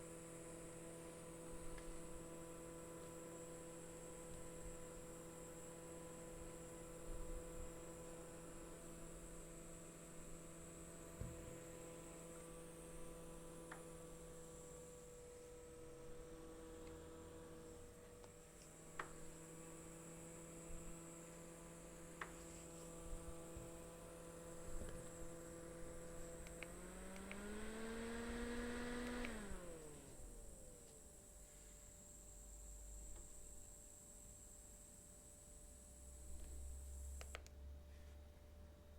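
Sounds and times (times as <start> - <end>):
desk fan motor humming: 0.0 - 34.0
soft clicks: 26.4 - 27.5, 37.2 - 37.6.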